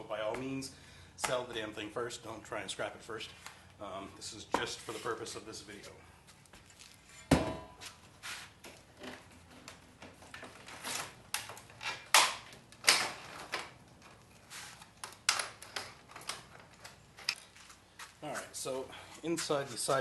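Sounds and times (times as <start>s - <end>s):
clanks and knocks of parts handled: 8.6s - 17.8s.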